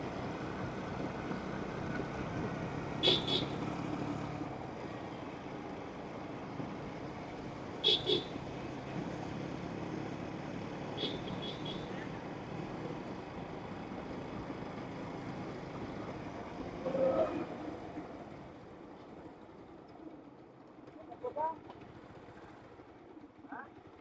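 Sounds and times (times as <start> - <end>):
vehicle engine running: 0.0 - 4.8
road noise: 0.0 - 24.0.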